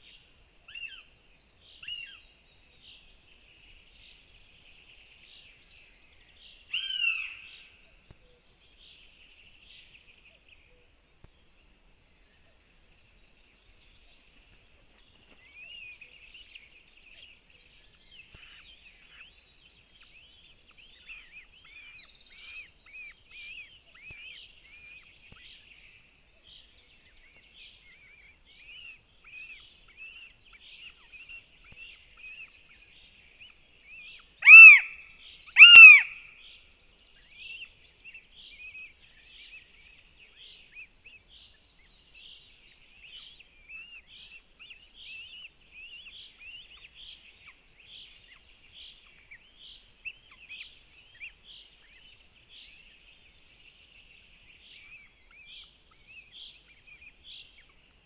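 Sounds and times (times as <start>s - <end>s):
hawk falling call: 34.4s - 34.9s, 35.6s - 36.1s.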